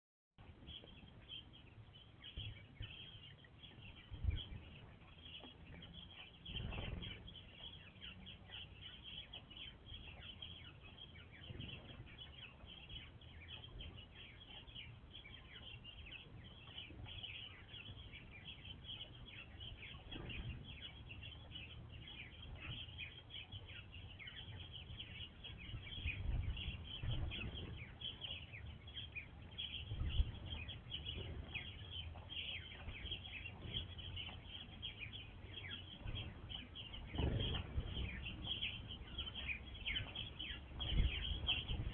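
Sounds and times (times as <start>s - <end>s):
songbirds chirping: 0.4s - 41.9s
low thumps and rumbles: 3.8s - 14.1s, 24.3s - 41.9s.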